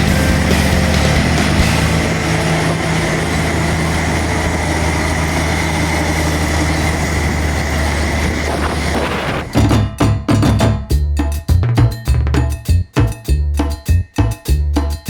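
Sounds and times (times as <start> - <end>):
diesel engine running: 0.0 - 10.2.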